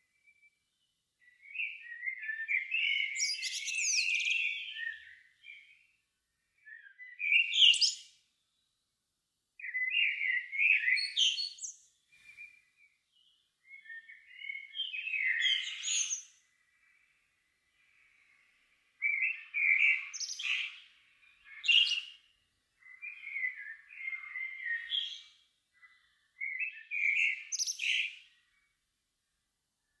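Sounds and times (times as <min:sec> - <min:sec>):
songbird warbling and twittering: 0:13.2 - 0:17.1, 0:17.7 - 0:22.1, 0:22.8 - 0:28.2.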